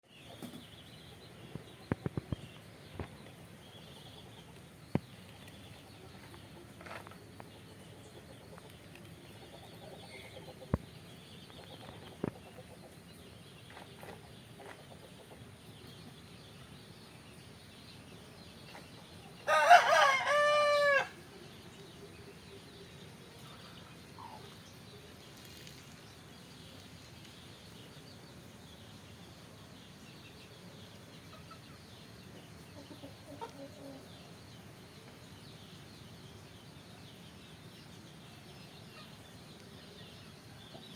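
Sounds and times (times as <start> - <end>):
loud crowing call: 19.5 - 21.2.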